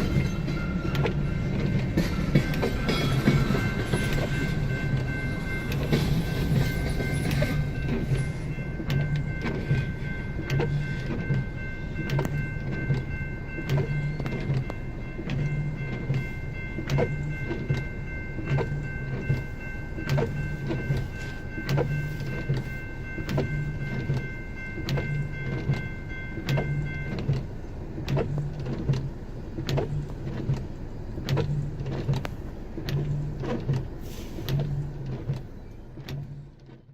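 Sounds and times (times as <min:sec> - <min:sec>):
train wheels clacking over rail joints: 0:00.0 - 0:27.5
crossing bell ringing: 0:00.0 - 0:31.8.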